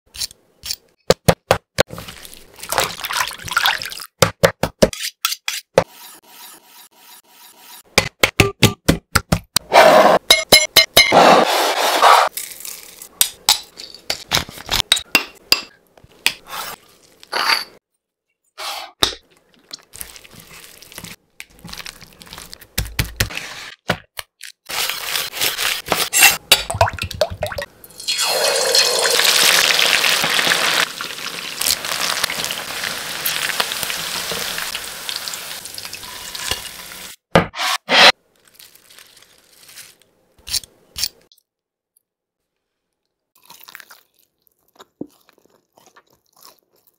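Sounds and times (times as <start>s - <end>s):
chicken deep-frying sizzle: 28.0s - 37.2s.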